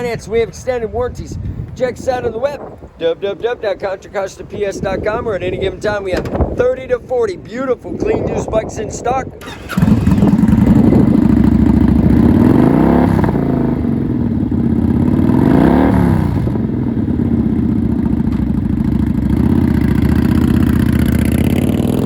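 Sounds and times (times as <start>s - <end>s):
motorcycle engine idling: 9.4s - 15.4s, 16.4s - 22.0s.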